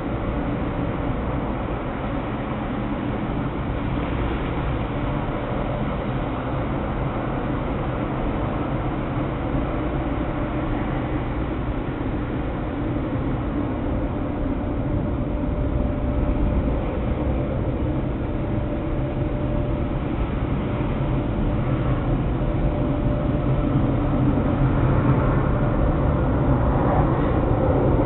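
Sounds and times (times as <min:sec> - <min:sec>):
faint steady hum: 0:00.0 - 0:28.0
low mechanical rumble: 0:00.0 - 0:28.0.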